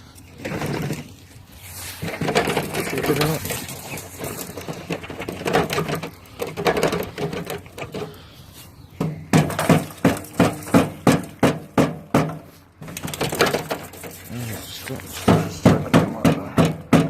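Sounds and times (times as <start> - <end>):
knocks on metal downspout: 2.0 - 8.1, 9.0 - 14.1, 15.2 - 17.0
metal clattering: 2.0 - 8.2, 9.0 - 17.0.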